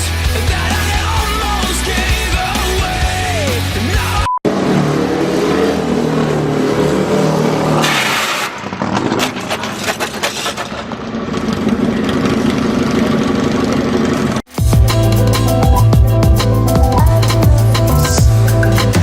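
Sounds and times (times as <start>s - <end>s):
motorcycle engine revving: 4.4s - 19.0s
knocks and clatter: 7.8s - 14.5s.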